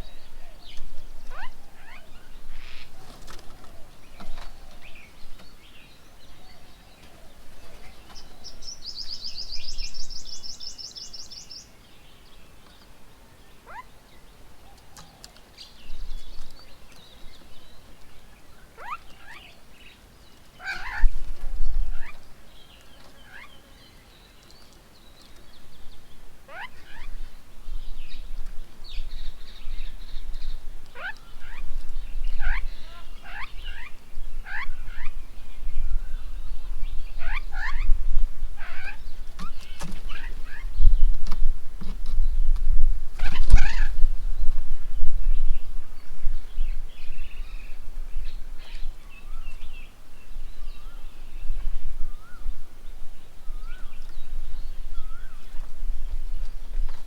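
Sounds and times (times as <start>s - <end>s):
birds chirping and whistling: 7.7s - 11.7s, 43.2s - 52.5s, 53.4s - 57.0s.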